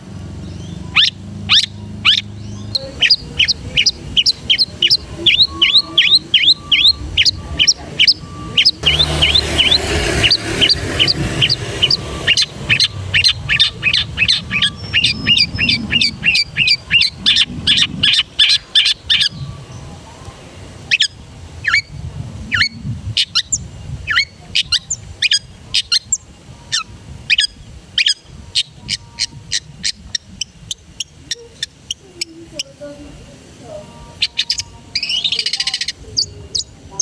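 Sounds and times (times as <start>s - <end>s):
shrike singing sharp notes: 8.8s - 15.0s.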